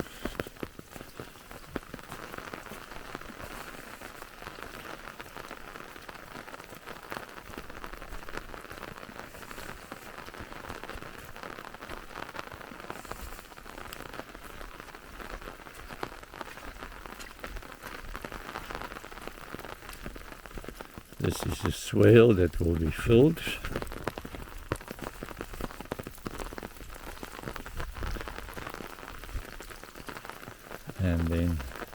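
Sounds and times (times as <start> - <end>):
steady rain falling: 0.0 - 31.9
sharp raindrop ticks: 0.1 - 31.9.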